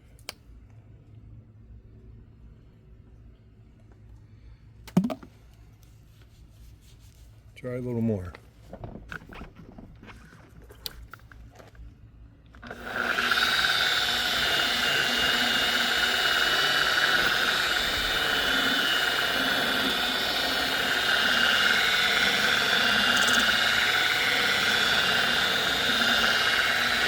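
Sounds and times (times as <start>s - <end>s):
electric buffer whining: 12.6s - 27.0s.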